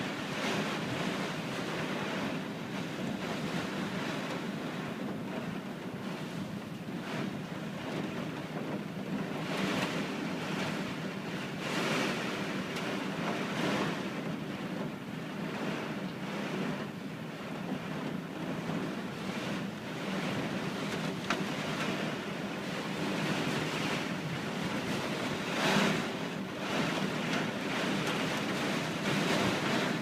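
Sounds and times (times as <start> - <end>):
wind rushing through tree leaves: 0.0 - 30.0.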